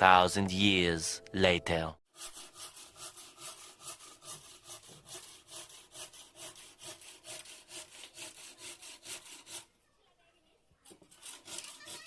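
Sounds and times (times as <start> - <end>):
hand saw cutting wood: 2.1 - 9.8, 10.9 - 12.0.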